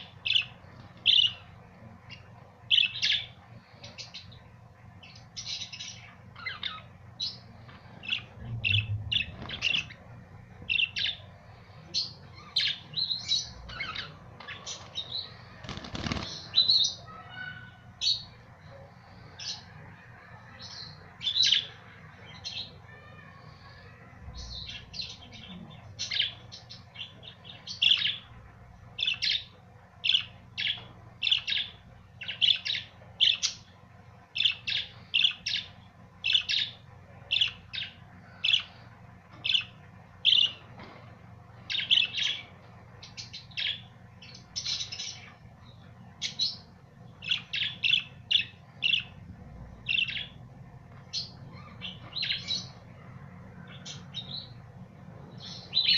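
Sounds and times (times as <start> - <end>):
budgerigars chirping: 8.0 - 10.0, 12.0 - 18.2, 49.9 - 50.4.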